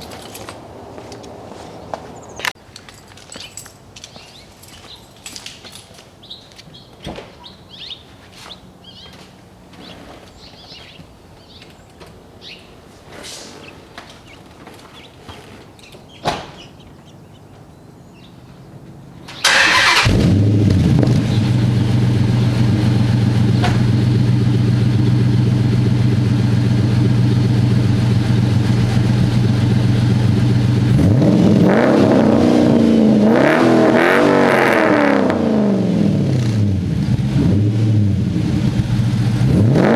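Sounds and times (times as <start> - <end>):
car engine starting and idling: 19.2 - 39.9
engine revving: 19.4 - 39.9.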